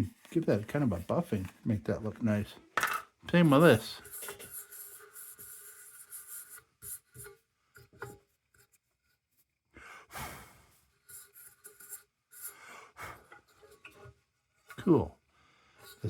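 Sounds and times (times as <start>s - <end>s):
lantern parts scraping: 0.0s - 8.2s, 15.8s - 16.0s.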